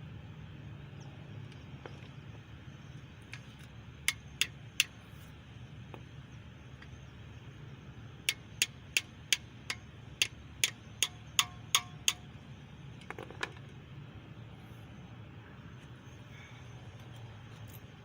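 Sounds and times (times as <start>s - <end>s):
hammer striking metal: 8.3s - 12.3s.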